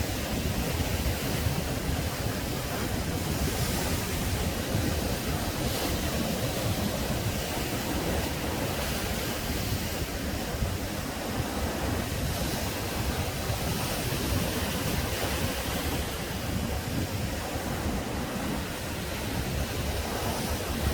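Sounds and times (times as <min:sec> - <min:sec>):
waves breaking on shore: 0:00.0 - 0:20.9.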